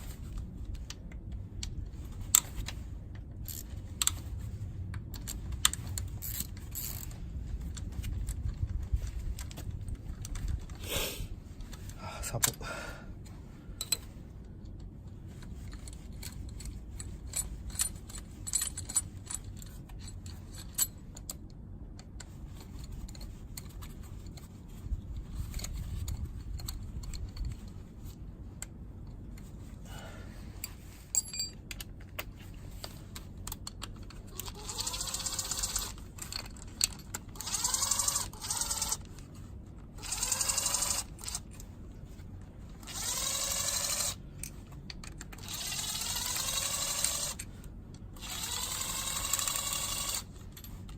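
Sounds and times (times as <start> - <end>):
metallic clinks of bolts and tools: 13.8 - 14.8, 15.5 - 21.4, 30.6 - 32.3
small electric motor whirring: 34.2 - 36.1, 37.0 - 39.2, 39.9 - 41.7, 42.7 - 44.2, 45.4 - 47.5, 48.1 - 50.4.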